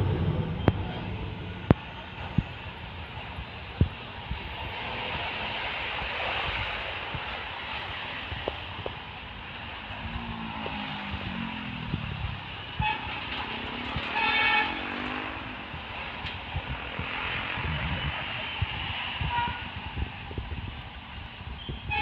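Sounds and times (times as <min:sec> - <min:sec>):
heavy vehicle engine passing: 0:00.0 - 0:03.6
road traffic: 0:00.0 - 0:22.0
vehicle horn: 0:12.8 - 0:13.2, 0:14.0 - 0:15.1, 0:19.2 - 0:19.7, 0:21.6 - 0:22.0.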